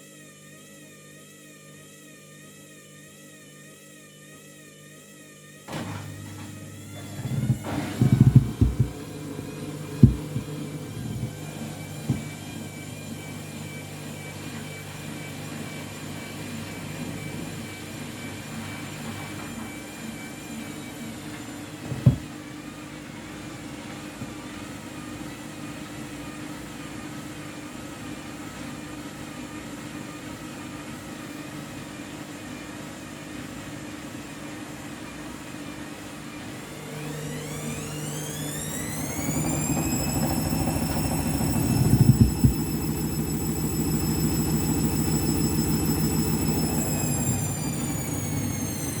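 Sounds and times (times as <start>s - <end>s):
washing machine motor hum: 5.7s - 26.8s, 36.3s - 49.0s
loud thump in drum: 7.2s - 9.1s, 10.0s - 11.4s, 21.9s - 22.3s.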